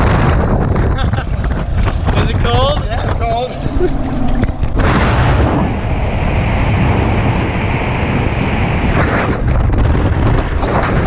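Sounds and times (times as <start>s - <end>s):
wind buffeting microphone: 0.0s - 11.0s
low rumbling: 0.1s - 8.9s.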